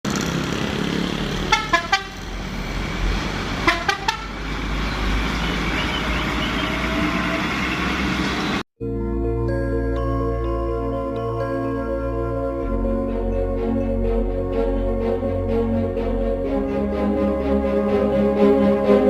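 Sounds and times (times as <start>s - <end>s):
engine and traffic rumble: 0.0s - 8.7s
truck horn short toots: 1.5s - 2.2s, 3.6s - 4.3s.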